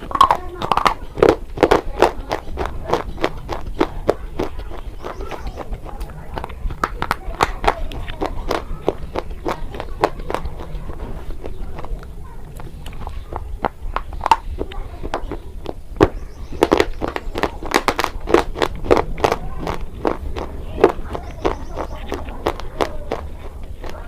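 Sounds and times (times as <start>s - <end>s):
crunching and chewing chalk: 0.0s - 24.0s.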